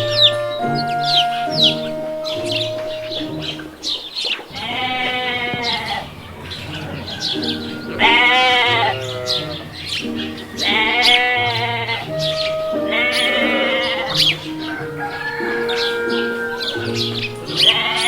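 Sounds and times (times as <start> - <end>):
background music: 0.0 - 18.0
sheep bleating: 4.5 - 18.0.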